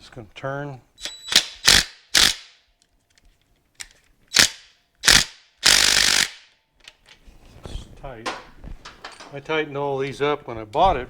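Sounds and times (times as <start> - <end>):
ratcheting noise: 4.3 - 6.5.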